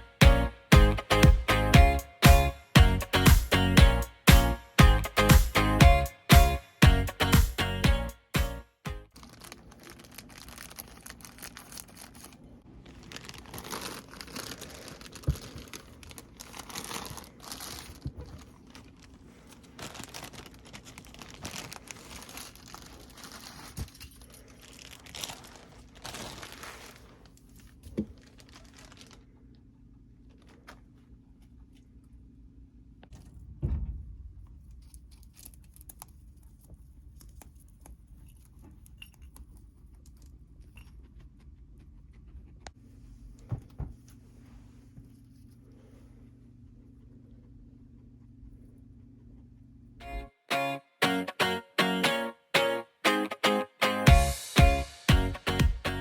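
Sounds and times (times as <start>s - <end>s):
crinkling and rustling: 9.1s - 32.0s
dull thump: 33.4s - 34.2s.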